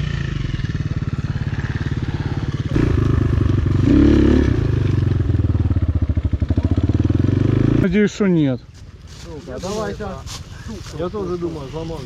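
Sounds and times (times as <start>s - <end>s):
motorcycle engine revving: 0.0s - 8.0s
motorcycle engine idling: 0.0s - 9.1s.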